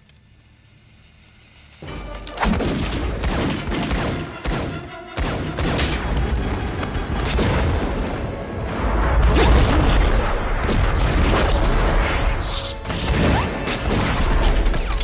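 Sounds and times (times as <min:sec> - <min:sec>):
dramatic music score: 0:01.8 - 0:15.0
rapid gunfire: 0:02.5 - 0:06.0.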